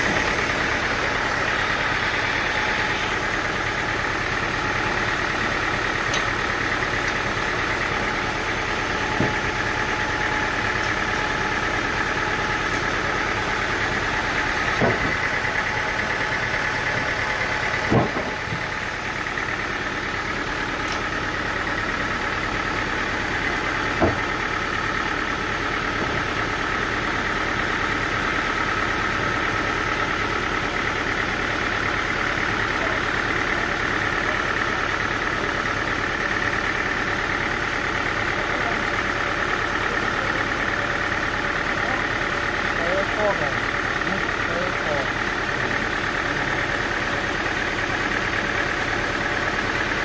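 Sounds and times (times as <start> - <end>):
sawmill engine running: 0.0 - 50.0.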